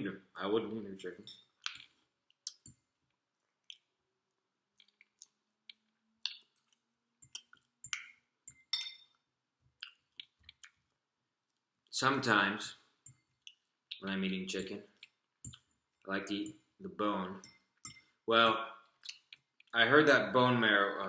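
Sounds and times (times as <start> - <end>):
fork clinking on a plate: 7.9 - 9.2.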